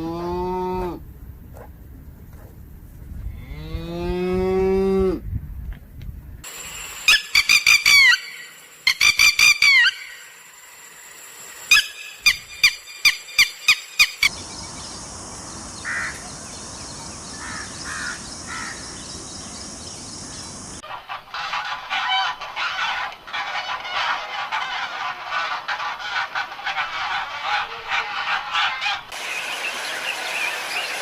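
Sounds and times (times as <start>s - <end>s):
steady hiss: 6.4s - 21.3s, 29.1s - 31.0s
fowl calling: 7.0s - 10.4s, 11.7s - 14.4s, 17.4s - 19.0s, 20.8s - 29.8s.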